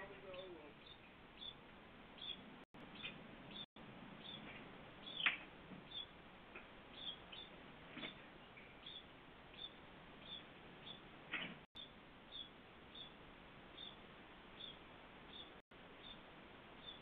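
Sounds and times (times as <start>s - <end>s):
small bird chirping: 0.0s - 17.0s.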